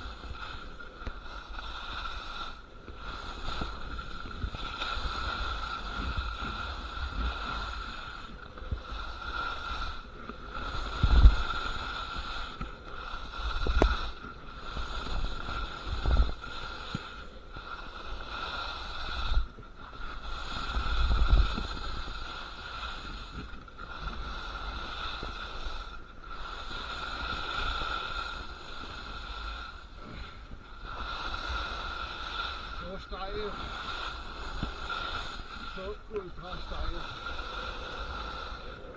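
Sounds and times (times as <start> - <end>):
skis scraping on icy snow: 0.0 - 38.9
wind buffeting microphone: 18.8 - 25.9.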